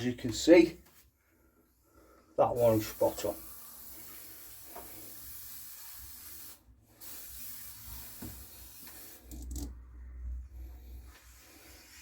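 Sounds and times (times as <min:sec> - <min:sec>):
steady hiss: 0:02.5 - 0:09.5.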